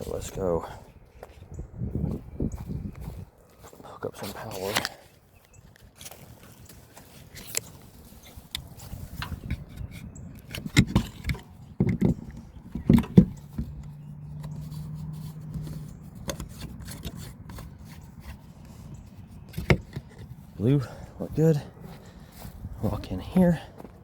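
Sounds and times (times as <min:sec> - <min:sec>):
power cord and plug handled: 0:07.2 - 0:20.3.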